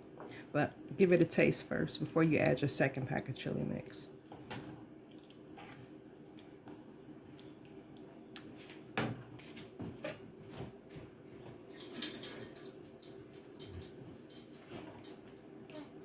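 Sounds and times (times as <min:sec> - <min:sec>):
utensils clinking against pot: 0:11.7 - 0:16.0.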